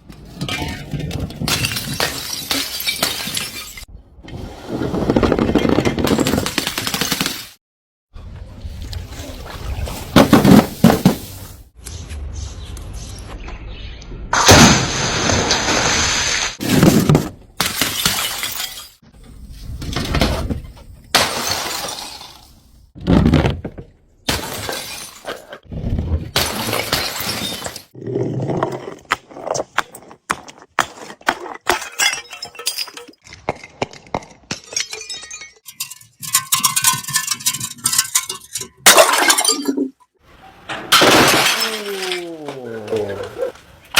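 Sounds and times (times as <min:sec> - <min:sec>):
glass bottles smashing: 0:01.4 - 0:03.9, 0:16.6 - 0:19.0, 0:21.1 - 0:22.7, 0:24.3 - 0:25.5, 0:26.4 - 0:28.0, 0:31.6 - 0:40.0, 0:40.9 - 0:43.0.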